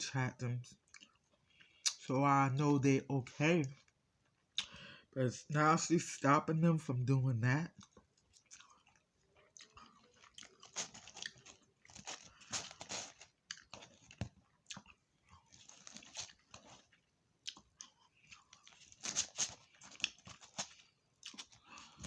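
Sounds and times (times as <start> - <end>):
chewing crunchy fried food: 0.7 - 2.1, 3.6 - 5.1, 7.7 - 22.0
wet mouth clicks: 4.6 - 4.8.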